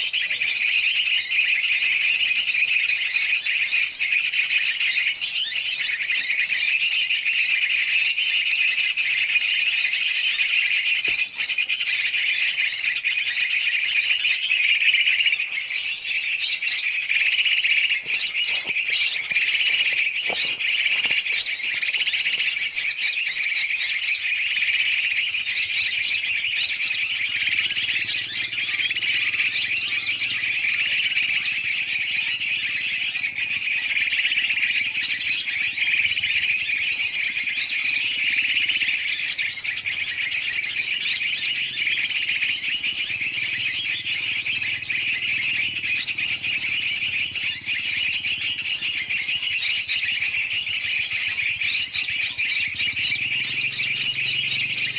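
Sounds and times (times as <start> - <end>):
birds chirping and chattering: 0.0 - 54.9
fast high bird trills: 0.0 - 54.9.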